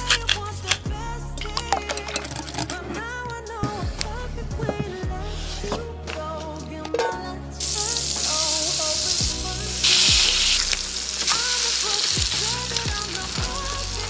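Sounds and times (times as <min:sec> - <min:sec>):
meat sizzling in a pan: 0:09.8 - 0:12.4.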